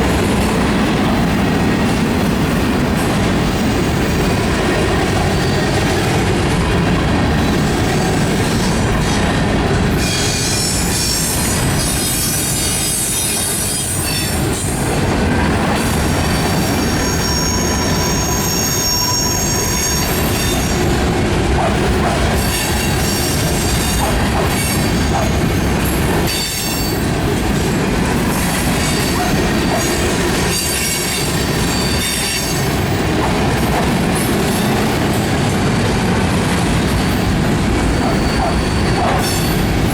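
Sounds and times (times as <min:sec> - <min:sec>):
train cars rumbling and clacking: 0:00.0 - 0:39.9
train wheels squealing: 0:05.2 - 0:06.0, 0:09.9 - 0:14.8, 0:15.7 - 0:21.1, 0:21.7 - 0:33.4, 0:37.1 - 0:39.9.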